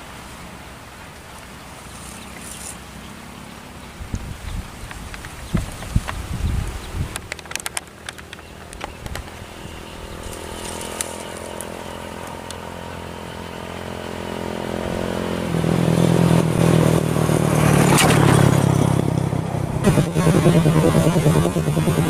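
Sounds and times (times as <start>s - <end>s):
small petrol engine running: 7.3s - 22.0s.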